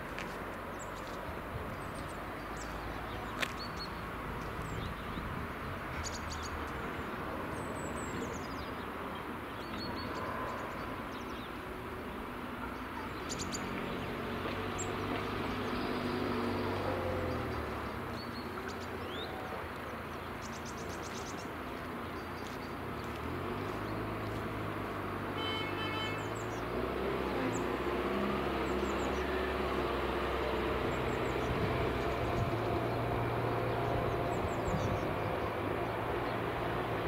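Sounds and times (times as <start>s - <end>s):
small birds chirping: 0.0s - 37.0s
train horn blast: 25.4s - 26.4s.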